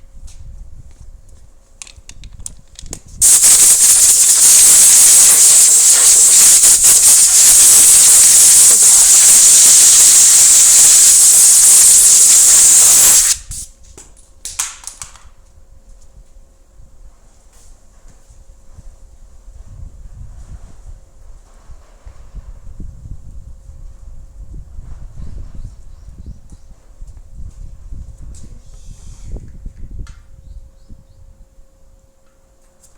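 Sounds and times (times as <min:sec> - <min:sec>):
small clicks and knocks: 0:01.8 - 0:03.0
compressed air hissing: 0:03.2 - 0:13.6.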